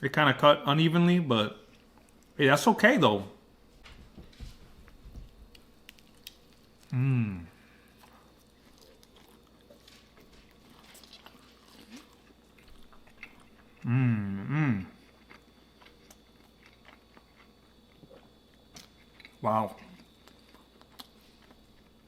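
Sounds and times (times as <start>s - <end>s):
man chewing food: 1.6s - 2.4s, 3.7s - 22.0s
man humming mmm: 6.8s - 7.7s, 13.8s - 15.0s.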